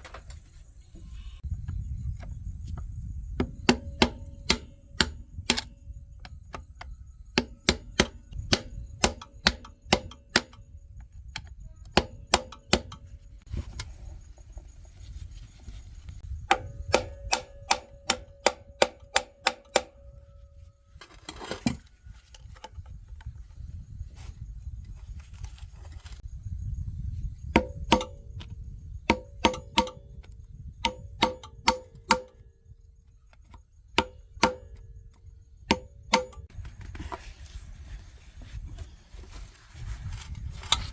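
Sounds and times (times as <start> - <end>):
hammer blows on metal: 3.2 - 10.7, 16.3 - 20.1, 27.4 - 32.5, 34.0 - 34.9, 35.7 - 36.5.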